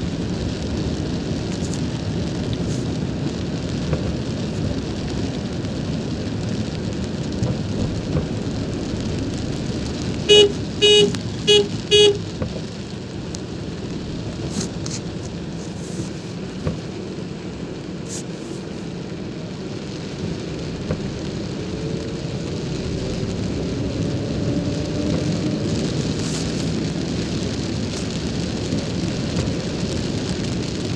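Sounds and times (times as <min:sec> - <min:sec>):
road noise: 0:00.0 - 0:30.9
steady rain: 0:00.0 - 0:30.9
vehicle horn honks: 0:10.3 - 0:12.2.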